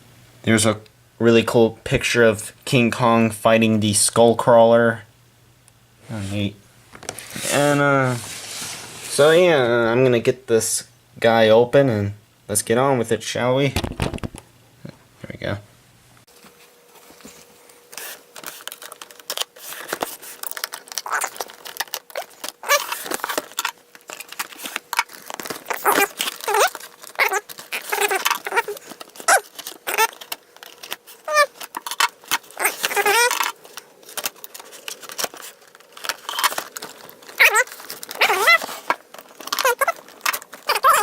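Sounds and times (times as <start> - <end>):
cardboard and plastic tearing: 18.0 - 41.0
packaging clicks: 18.0 - 41.0.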